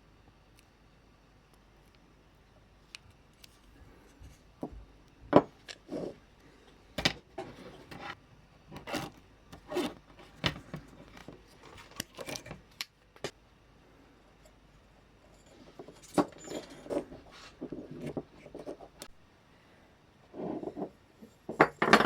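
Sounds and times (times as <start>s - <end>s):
small plastic parts clicking and scraping: 7.0s - 13.3s.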